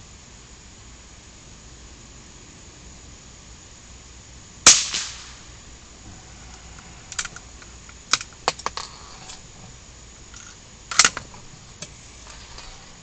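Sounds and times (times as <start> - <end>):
gunshot: 4.7 - 5.5.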